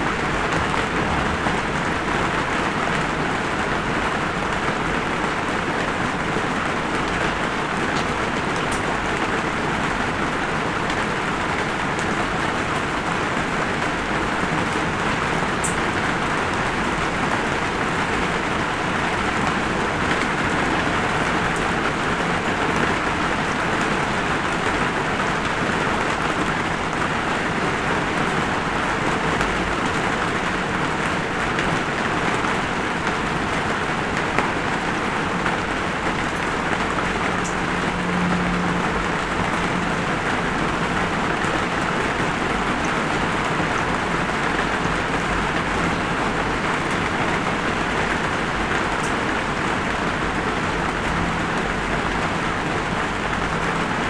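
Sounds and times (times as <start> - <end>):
raindrop ticks: 15.6 - 15.9.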